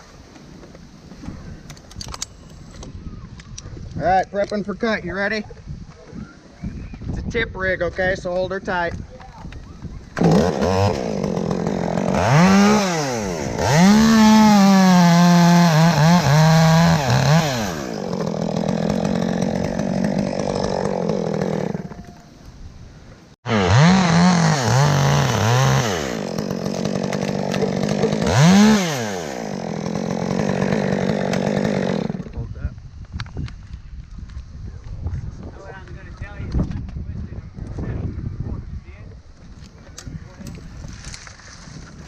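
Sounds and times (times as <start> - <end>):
chainsaw cutting wood: 10.2 - 22.2, 23.5 - 32.4.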